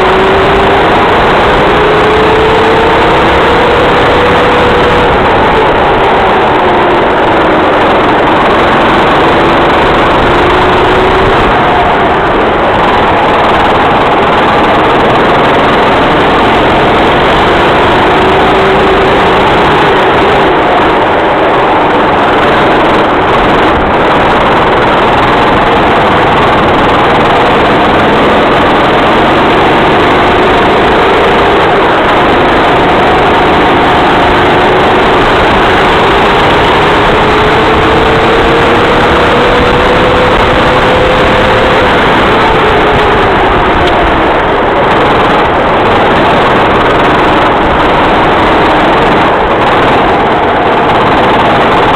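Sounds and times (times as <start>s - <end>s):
kart engine running hard: 0.0s - 51.9s.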